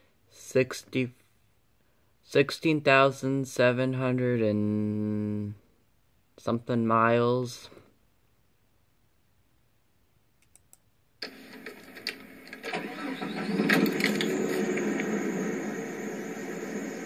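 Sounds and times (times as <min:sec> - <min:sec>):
faint clicks: 0:10.4 - 0:10.9
car engine starting and idling: 0:11.2 - 0:17.0.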